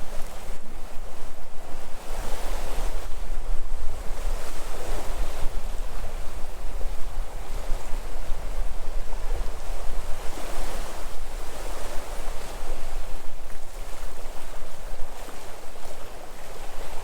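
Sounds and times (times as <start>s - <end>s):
sea waves washing onto shore: 0.0s - 17.0s
wind buffeting microphone: 0.0s - 17.0s.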